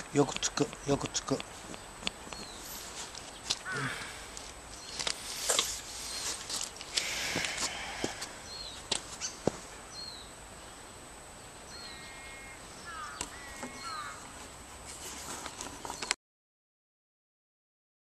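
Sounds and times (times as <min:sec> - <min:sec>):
birds chirping: 0:00.0 - 0:14.4, 0:15.4 - 0:16.2
long patterned bird calls: 0:11.7 - 0:14.4.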